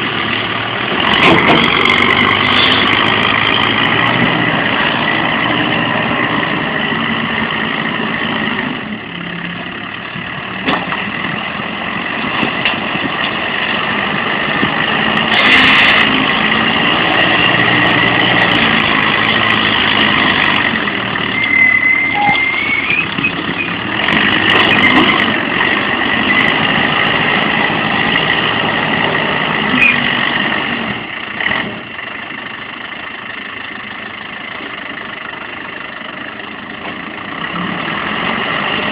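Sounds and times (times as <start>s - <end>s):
heavy vehicle engine running: 0.0s - 38.9s.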